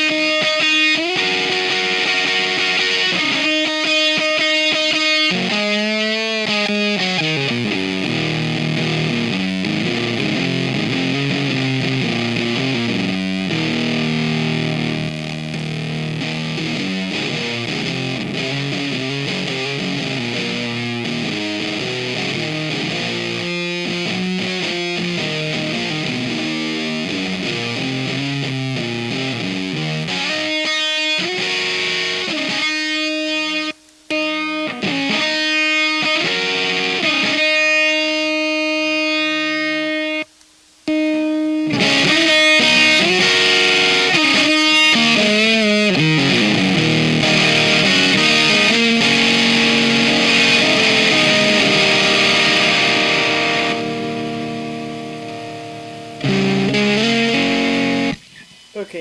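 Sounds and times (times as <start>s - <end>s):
distorted electric guitar riffs: 0.0s - 40.3s, 40.9s - 59.0s.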